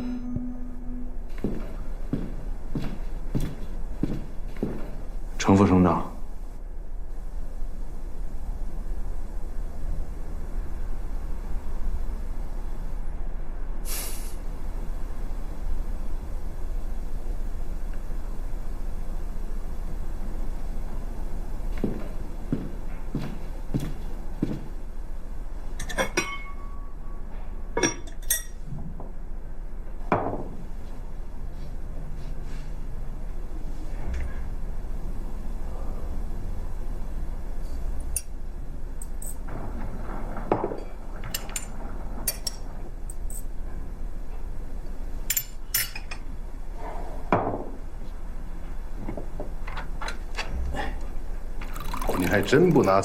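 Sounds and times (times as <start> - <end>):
tableware knocks and clinks: 25.8 - 26.8, 27.8 - 28.6.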